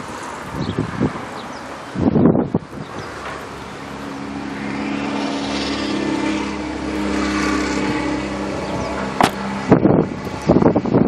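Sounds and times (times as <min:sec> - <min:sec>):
car engine humming: 0:06.5 - 0:09.8.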